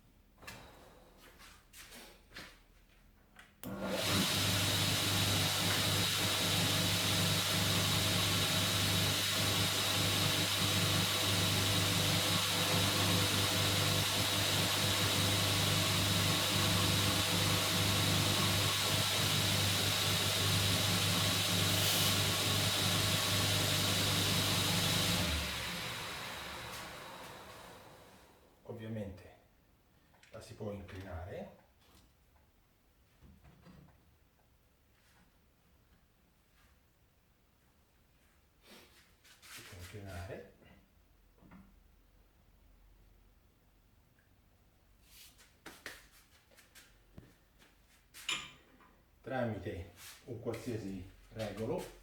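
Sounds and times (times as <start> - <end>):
belt grinder running: 3.8 - 27.5.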